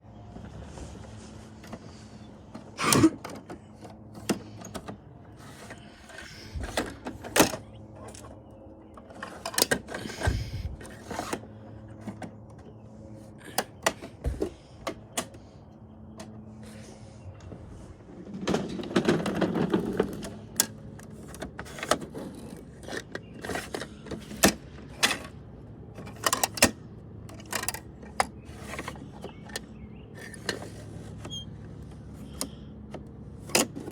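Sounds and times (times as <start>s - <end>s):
plastic toy clicks and knocks: 26.0s - 30.7s.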